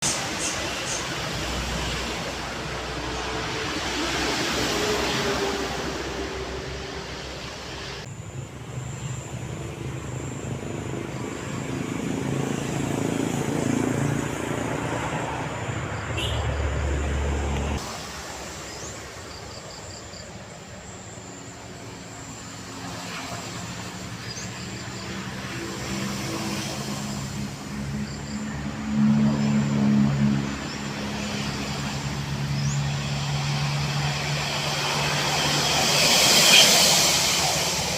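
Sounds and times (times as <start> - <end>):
diesel locomotive engine throbbing: 25.4 - 37.9.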